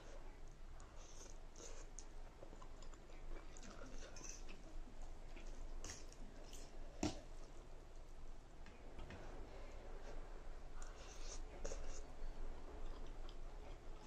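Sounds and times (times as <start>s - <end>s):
person chewing noodles: 1.0s - 6.7s.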